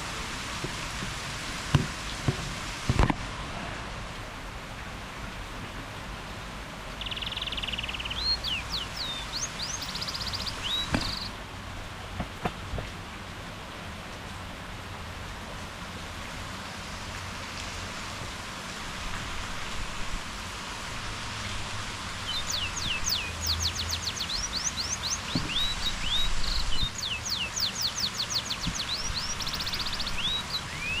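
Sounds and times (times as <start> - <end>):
steady rain falling: 0.0 - 31.0
bird singing: 7.0 - 11.3, 22.3 - 31.0.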